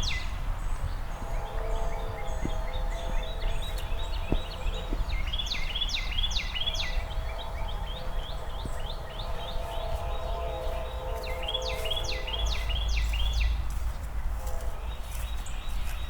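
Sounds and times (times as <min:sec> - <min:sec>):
steady low hum: 0:00.0 - 0:15.9
outdoor background noise: 0:00.0 - 0:16.0.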